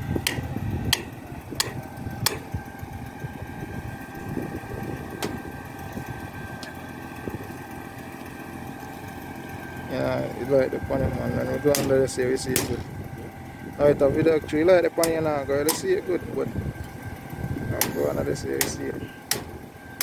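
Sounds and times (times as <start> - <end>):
diesel engine running: 0.0 - 20.0
sharp metallic clicks: 0.1 - 2.6, 11.6 - 13.0, 14.9 - 16.0, 17.7 - 20.0.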